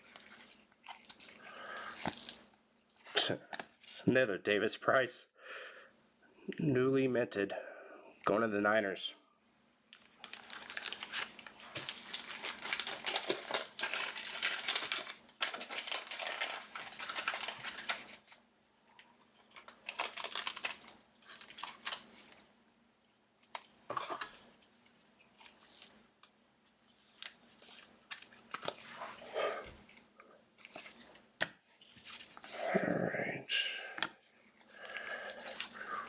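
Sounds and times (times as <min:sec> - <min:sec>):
foil wrappers crinkling: 0:00.0 - 0:04.0, 0:10.0 - 0:18.4, 0:19.2 - 0:22.7, 0:23.4 - 0:26.1, 0:26.8 - 0:32.8, 0:33.8 - 0:36.0.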